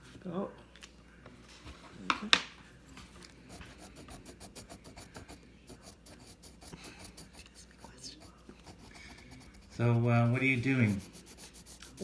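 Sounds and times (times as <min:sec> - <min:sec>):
pencil scratching on paper: 0:03.4 - 0:12.0.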